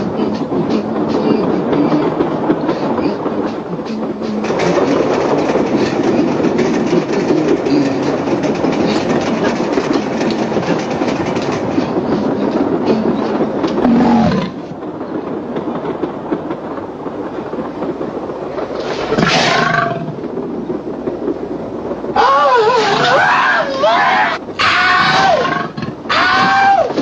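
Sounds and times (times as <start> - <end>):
train wheels clickety-clack: 0.0 - 27.0
loud pitched cry: 22.2 - 25.5.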